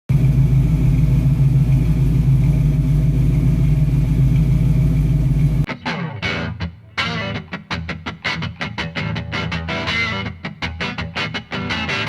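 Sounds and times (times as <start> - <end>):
car engine running: 0.1 - 5.7.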